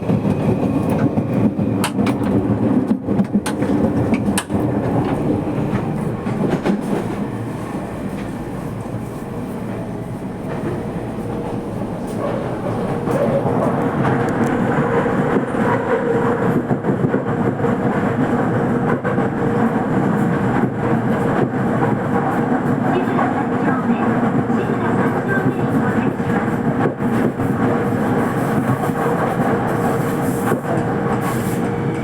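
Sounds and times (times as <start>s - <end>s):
subway train wheels rumbling: 0.0s - 32.0s.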